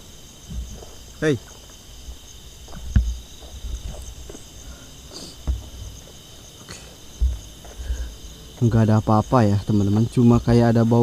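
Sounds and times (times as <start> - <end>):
forest insects chirring: 0.0 - 11.0
dull low thumps: 0.4 - 4.8, 5.4 - 6.1, 7.0 - 9.3.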